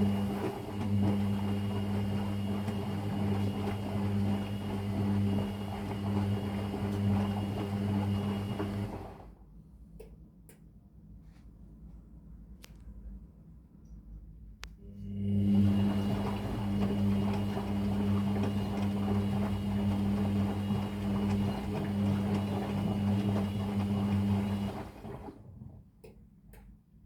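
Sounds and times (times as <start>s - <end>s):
washing machine running: 0.0s - 9.4s, 14.9s - 25.9s.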